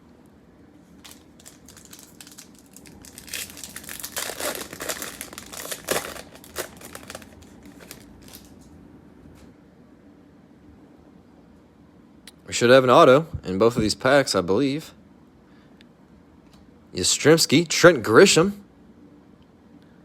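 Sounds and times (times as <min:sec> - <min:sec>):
card pack wrappers crinkling: 0:00.9 - 0:08.7.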